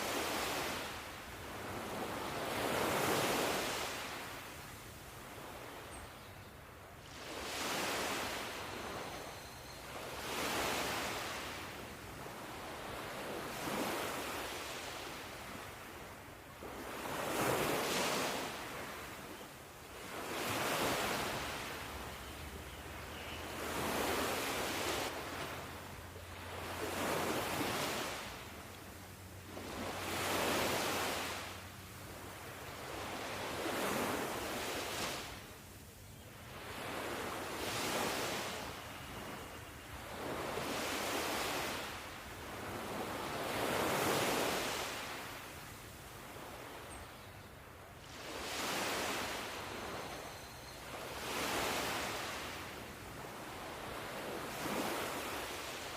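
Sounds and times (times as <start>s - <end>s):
ocean waves washing in: 0.0s - 4.6s, 20.0s - 35.6s.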